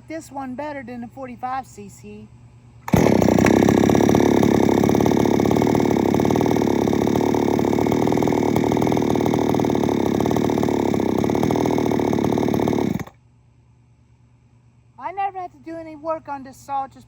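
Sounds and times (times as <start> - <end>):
chainsaw idling: 2.9 - 13.2.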